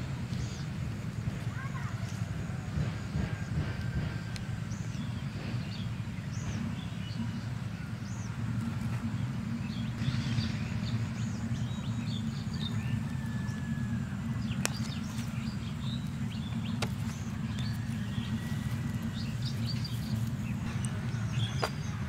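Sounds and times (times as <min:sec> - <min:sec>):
low rumble: 0:00.0 - 0:22.0
small birds chirping: 0:00.0 - 0:22.0.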